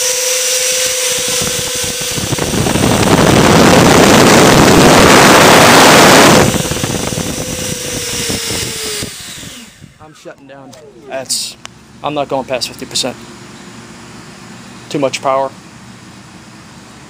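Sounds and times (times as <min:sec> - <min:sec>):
loud rush of air: 0:00.0 - 0:12.0
electric ducted fans whining: 0:00.0 - 0:17.0.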